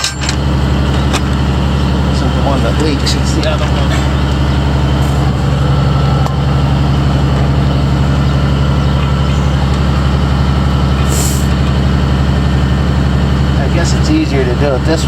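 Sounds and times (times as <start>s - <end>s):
engine idling: 0.0s - 15.0s
high hiss of escaping air: 11.1s - 11.5s.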